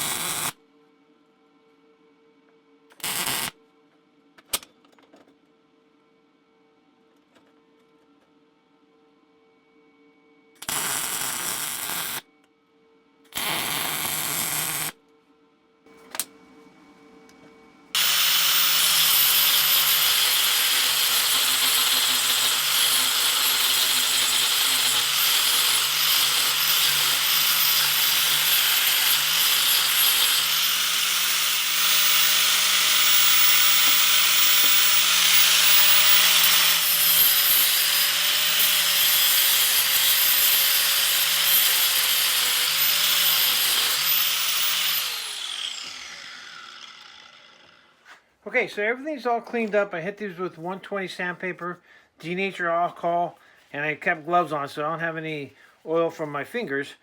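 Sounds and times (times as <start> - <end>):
welding bursts: 0.0 - 0.6, 3.0 - 3.6, 10.6 - 12.2, 13.4 - 15.0, 18.0 - 45.4
power grinder grinding metal: 18.0 - 47.9.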